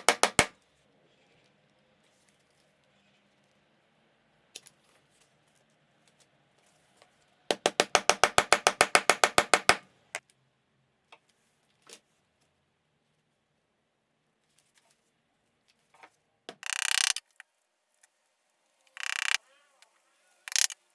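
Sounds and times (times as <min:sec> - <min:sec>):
rapid mechanical clicks: 0:16.6 - 0:17.2, 0:19.0 - 0:19.4, 0:20.5 - 0:20.8.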